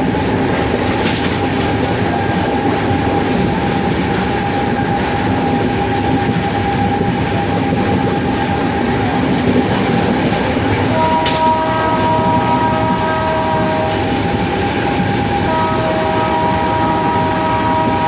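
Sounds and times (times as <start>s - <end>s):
locomotive wheels rumbling: 0.0s - 18.0s
locomotive whine: 0.0s - 18.0s
train horn: 10.8s - 18.0s.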